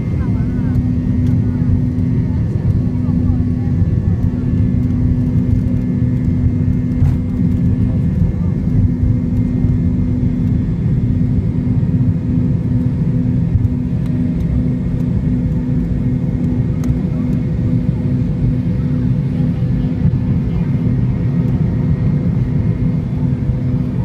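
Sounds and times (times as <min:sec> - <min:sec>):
jet engine whine: 0:00.0 - 0:24.0
jet engines rumbling: 0:00.0 - 0:24.0.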